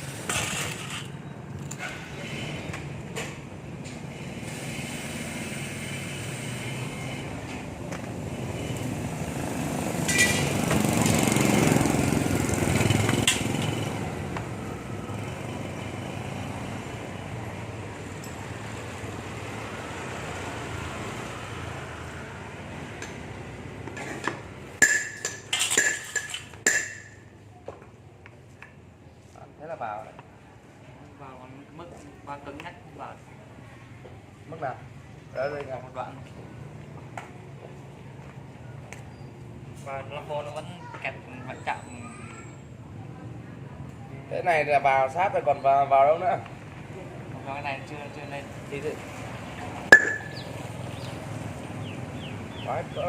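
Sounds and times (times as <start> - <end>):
steady mechanical noise: 0.0 - 19.5
metal parts handled: 24.0 - 27.1
sharp metal clinks: 49.9 - 50.5.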